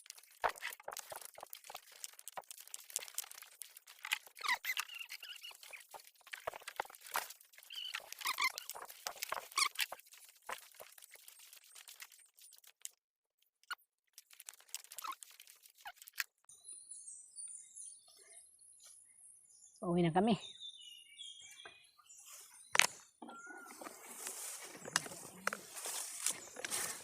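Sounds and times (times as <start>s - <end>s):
rustling handling noise: 0.0s - 13.0s, 14.2s - 16.4s, 23.6s - 27.0s
short squeaks: 4.0s - 5.8s, 7.6s - 9.9s.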